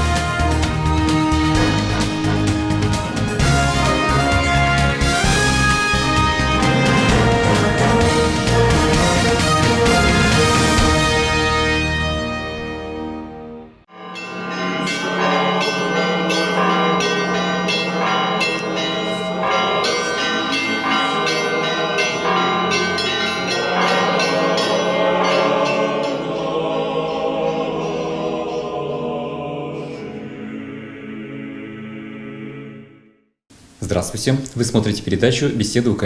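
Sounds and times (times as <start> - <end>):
church bells ringing: 1.3 - 12.9, 13.9 - 30.4.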